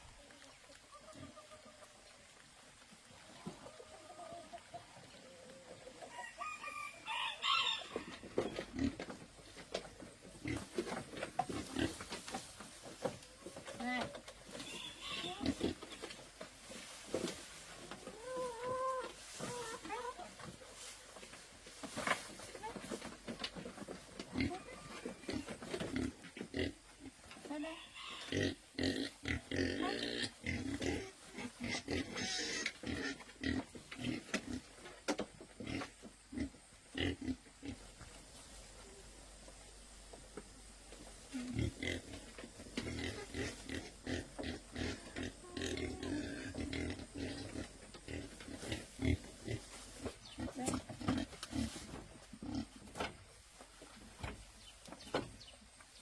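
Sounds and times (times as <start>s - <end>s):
rooster crowing: 6.1s - 8.1s
pigs grunting: 8.6s - 9.2s, 24.3s - 27.2s, 27.8s - 34.6s, 35.6s - 37.9s, 41.2s - 49.7s, 50.3s - 52.8s.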